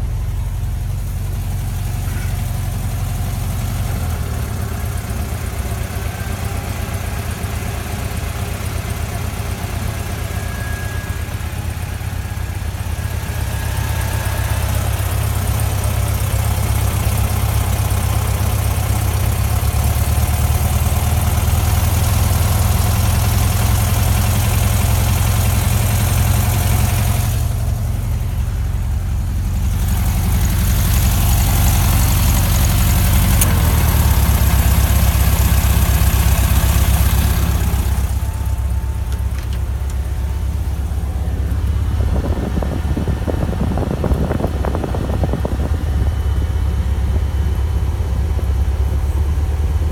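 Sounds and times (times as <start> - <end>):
car engine rumbling: 0.0 - 49.9.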